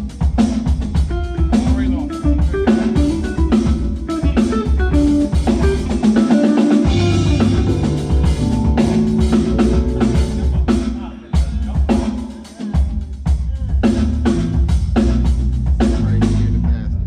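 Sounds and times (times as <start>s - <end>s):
guitar: 0.0s - 12.9s
drum kit: 0.0s - 17.0s
heavy low bass notes: 6.9s - 10.9s, 13.7s - 17.0s.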